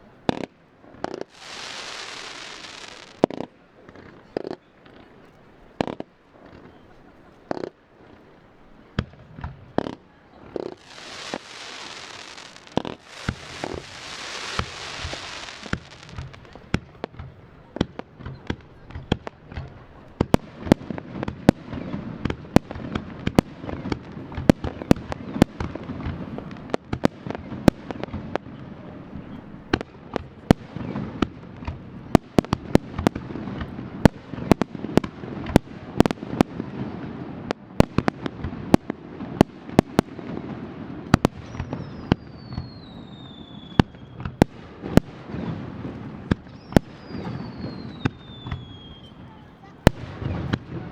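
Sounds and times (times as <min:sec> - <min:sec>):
falling firework whistle: 0:01.3 - 0:03.2, 0:10.8 - 0:16.5, 0:41.3 - 0:44.5, 0:46.5 - 0:49.3.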